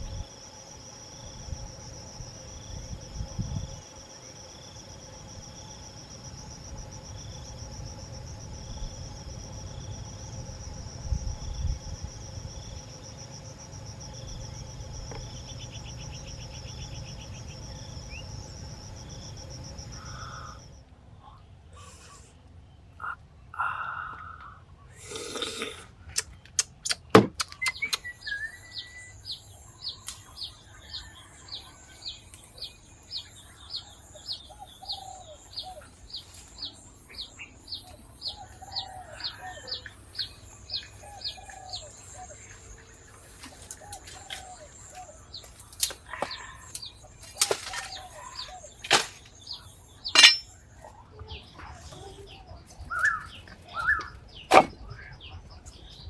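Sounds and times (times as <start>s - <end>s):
insect buzz: 0.0s - 20.8s
lower bird calls: 51.2s - 55.4s.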